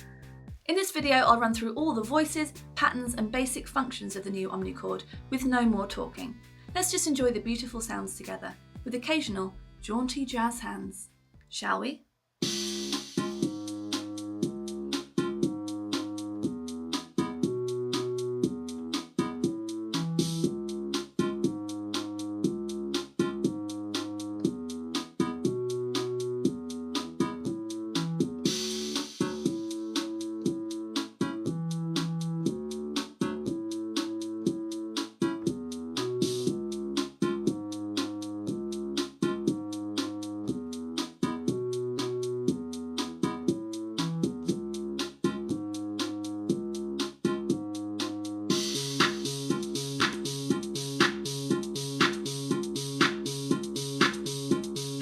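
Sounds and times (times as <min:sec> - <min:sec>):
electronic drum beat: 0:00.0 - 0:11.0, 0:12.4 - 0:55.0
electronic held chords: 0:44.5 - 0:55.0.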